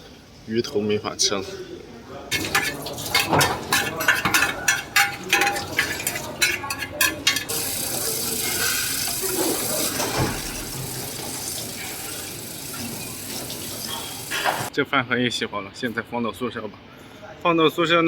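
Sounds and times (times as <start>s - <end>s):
utensils clinking and clattering: 2.3s - 14.7s
water running into a sink: 2.3s - 14.7s.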